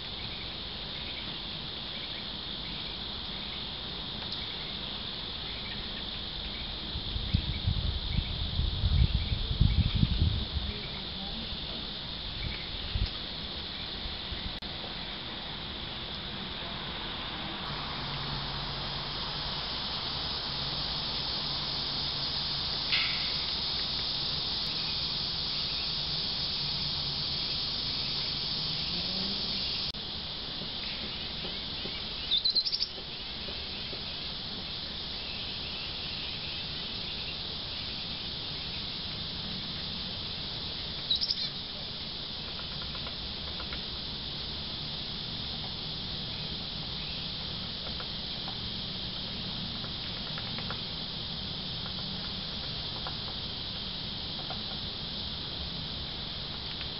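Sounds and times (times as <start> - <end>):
insects droning: 0.0 - 56.9
bird chirps: 30.8 - 34.2, 41.1 - 41.6.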